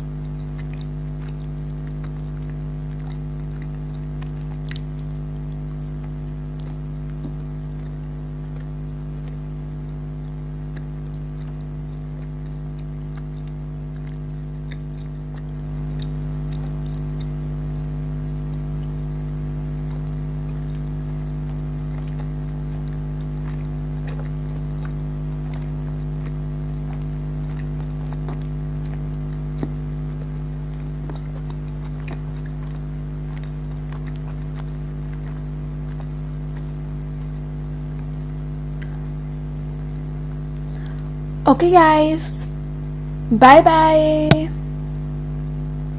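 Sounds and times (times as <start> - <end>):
candy chewing wet clicks: 0.0 - 41.2
low electrical hum: 0.0 - 45.9.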